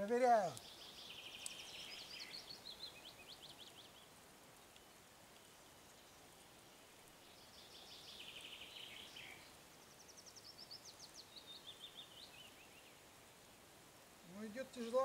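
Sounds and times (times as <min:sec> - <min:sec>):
songbird trilling: 0:00.6 - 0:04.1.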